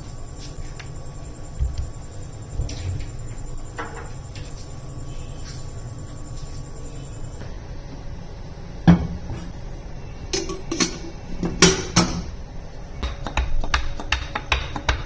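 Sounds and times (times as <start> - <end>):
low steady hum: 0.0 - 15.0
kitchenware knocking and clinking: 10.4 - 12.3.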